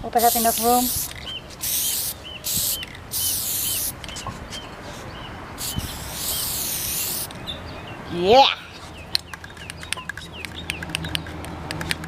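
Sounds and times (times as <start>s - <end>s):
spray paint can hissing: 0.2s - 4.0s, 5.6s - 7.3s.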